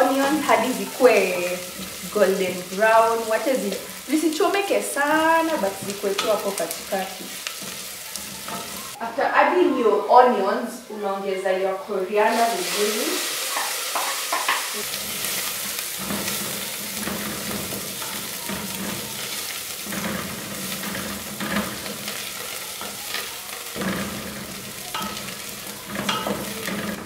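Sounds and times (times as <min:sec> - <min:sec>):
onions sizzling in hot oil: 0:00.0 - 0:09.0, 0:12.1 - 0:27.0
wooden spoon scraping a pot: 0:05.0 - 0:09.0, 0:13.6 - 0:27.0.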